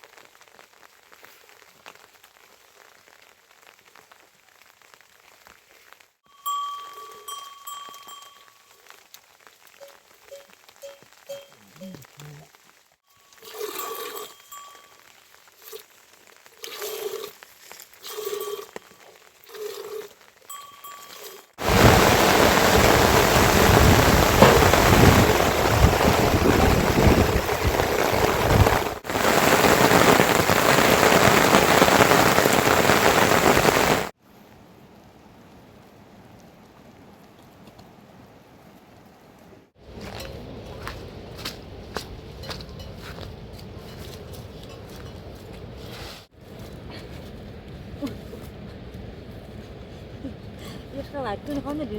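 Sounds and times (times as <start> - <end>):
heavy rain pouring: 21.6 - 34.2.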